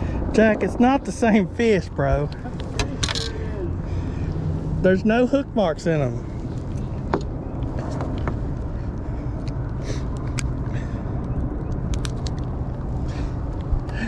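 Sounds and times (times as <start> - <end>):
rumbling background: 0.0 - 14.0.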